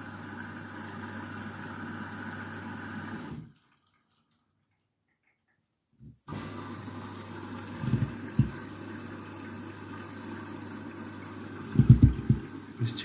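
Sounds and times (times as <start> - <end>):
water rushing into washing machine: 0.0 - 4.7, 6.2 - 13.0
short knocks: 11.7 - 12.5.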